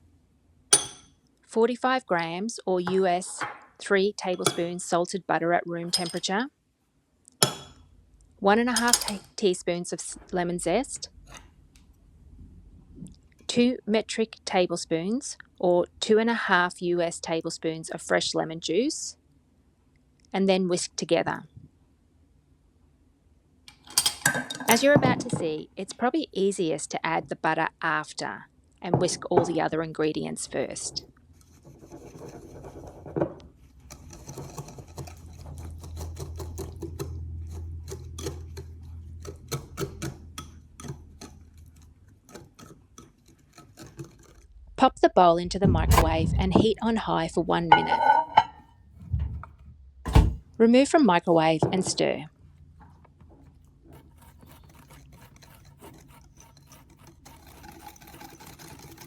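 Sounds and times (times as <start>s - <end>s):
low steady hum: 0.0s - 6.5s, 23.9s - 59.0s
whisk scraping a bowl: 30.6s - 44.6s, 53.4s - 59.0s
whisk clicking against bowl: 54.0s - 59.0s.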